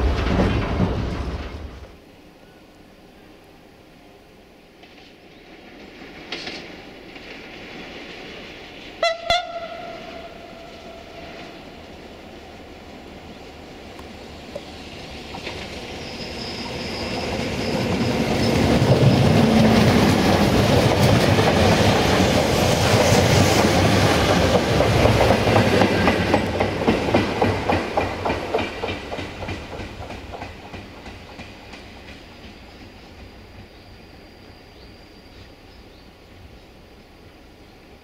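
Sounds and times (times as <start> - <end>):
train wheels clickety-clack: 0.0 - 2.0, 4.8 - 9.8, 13.9 - 35.5
train engine noise: 0.0 - 38.0.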